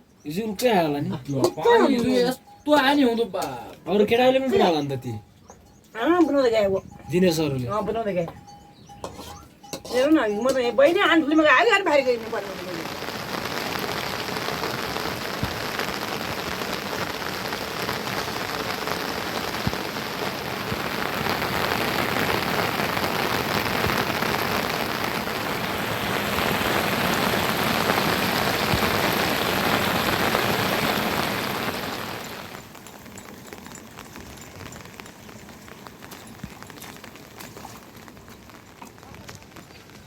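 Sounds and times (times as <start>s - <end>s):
heavy rain falling: 10.0s - 40.0s.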